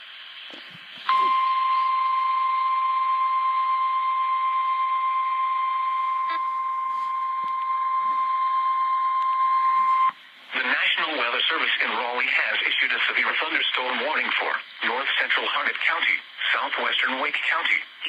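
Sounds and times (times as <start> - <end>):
radio hiss: 0.0 - 2.0, 9.8 - 18.0.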